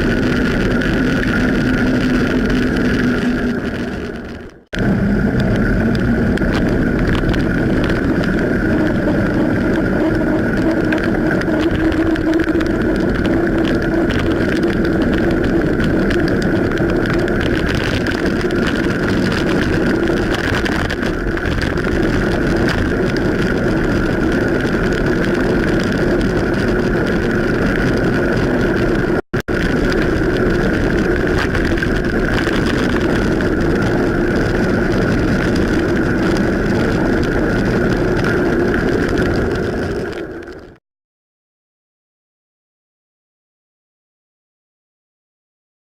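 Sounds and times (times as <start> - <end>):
constant hum: 0.0 - 40.6
bicycle tyres on wet road: 0.0 - 40.8
wind: 0.0 - 40.8.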